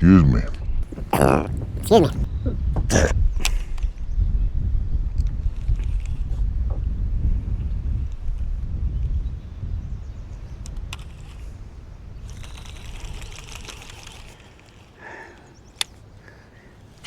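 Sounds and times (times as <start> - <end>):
wind rumbling on microphone: 0.9 - 13.9.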